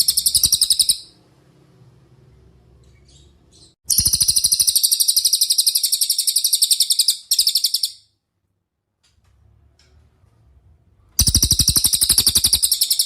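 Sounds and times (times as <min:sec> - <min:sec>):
bird song trill: 0:00.0 - 0:01.2, 0:02.3 - 0:08.2, 0:11.2 - 0:13.0.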